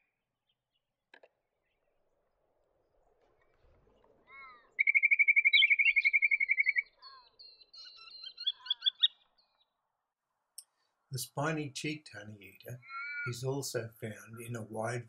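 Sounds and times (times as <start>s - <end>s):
bird calling and trilling: 4.2s - 9.7s, 12.8s - 13.4s.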